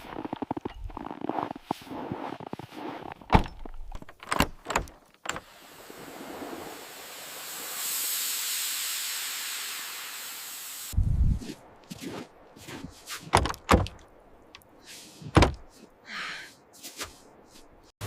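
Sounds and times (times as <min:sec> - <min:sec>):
steady hiss: 0:05.4 - 0:11.0.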